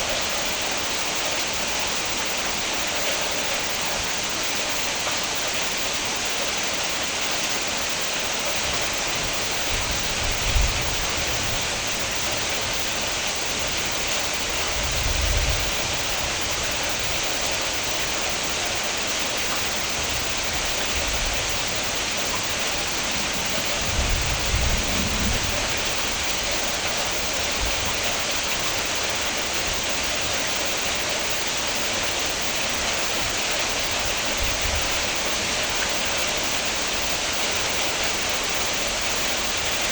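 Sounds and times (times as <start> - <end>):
heavy rain hiss: 0.0 - 39.9
brief low rumbles: 22.7 - 27.8.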